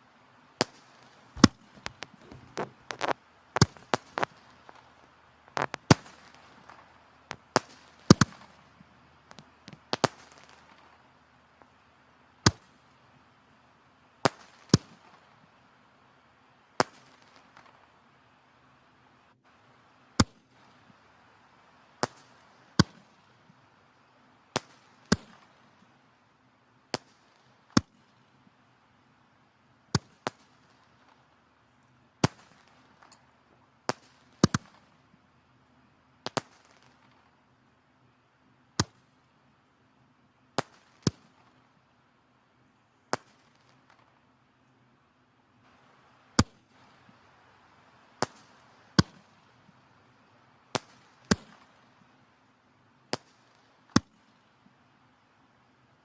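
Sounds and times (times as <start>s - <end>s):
loud wood pops: 0.6s - 4.8s, 5.5s - 8.5s
firewood crackling: 0.6s - 11.8s.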